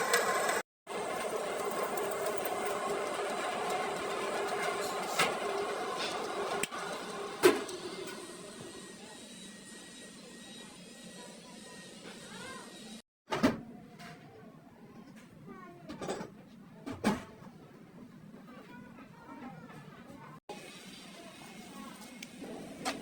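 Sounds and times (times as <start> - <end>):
machine humming: 0.0 - 9.7.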